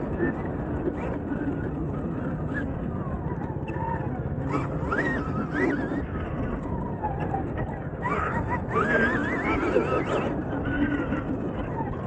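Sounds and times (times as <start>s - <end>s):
electric dirt bike motor whining: 4.4s - 6.6s, 8.0s - 10.6s.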